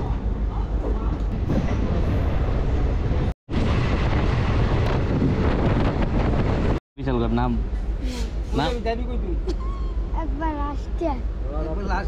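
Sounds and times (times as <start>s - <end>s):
train rumbling on track: 0.0s - 12.0s
wind buffeting microphone: 1.1s - 6.8s.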